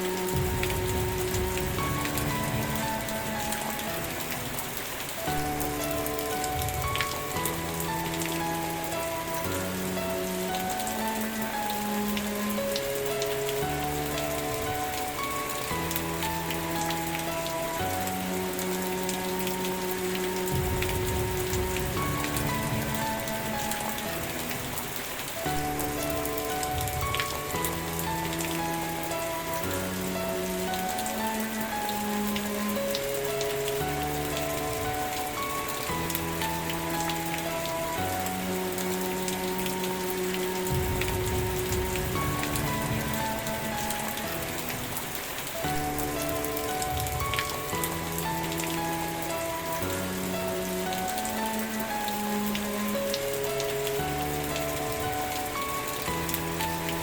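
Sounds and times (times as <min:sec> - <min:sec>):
raindrop ticks: 0:00.0 - 0:57.0
soft music of held chords: 0:00.0 - 0:57.0
steady rain: 0:00.0 - 0:57.0.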